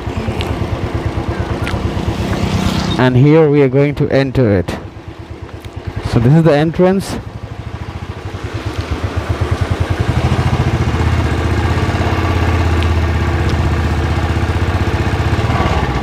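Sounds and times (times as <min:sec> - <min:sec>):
motorcycle engine thumping: 0:00.0 - 0:03.0.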